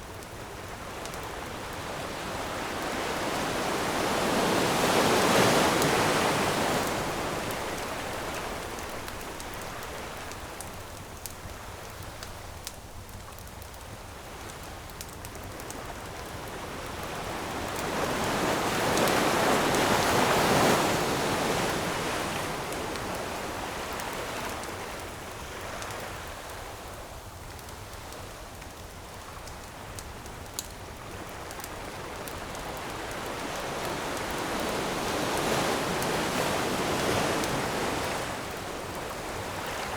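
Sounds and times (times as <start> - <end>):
campfire crackling: 0.0 - 39.9
ocean waves breaking on shore: 0.5 - 11.0, 15.8 - 26.8, 31.1 - 39.9.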